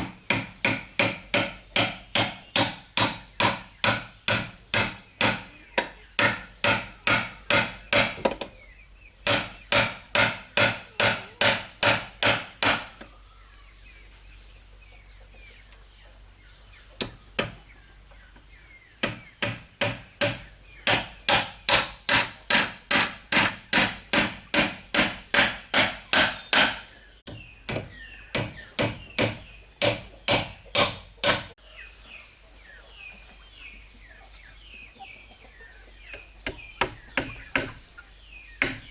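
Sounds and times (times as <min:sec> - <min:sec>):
hand tool striking wood: 0:00.0 - 0:08.5, 0:09.2 - 0:13.1, 0:17.0 - 0:17.6, 0:19.0 - 0:31.6, 0:36.4 - 0:37.8, 0:38.6 - 0:38.9.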